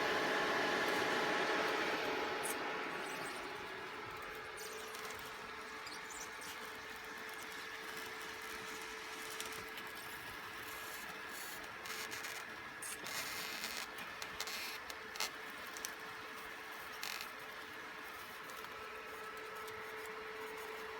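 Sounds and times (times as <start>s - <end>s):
steady hum over hiss: 0.0s - 9.6s.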